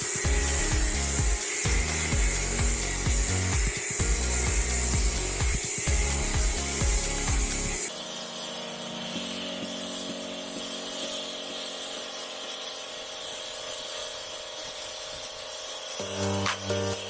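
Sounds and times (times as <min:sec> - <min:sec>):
foam sprayer hissing: 0:00.0 - 0:17.0
steady low hum: 0:00.1 - 0:07.8.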